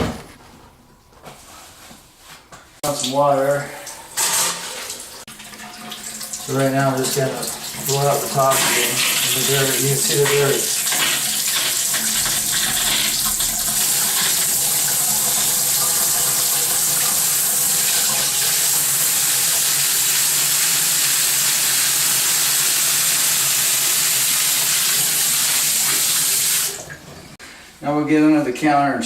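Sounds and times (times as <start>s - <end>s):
faucet water pouring into sink: 2.8s - 27.3s.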